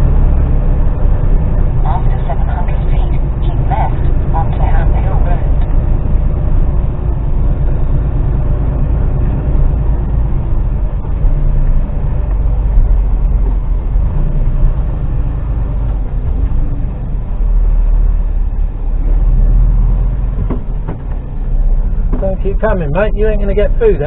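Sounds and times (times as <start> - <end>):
lorry diesel engine rumbling: 0.0 - 24.0.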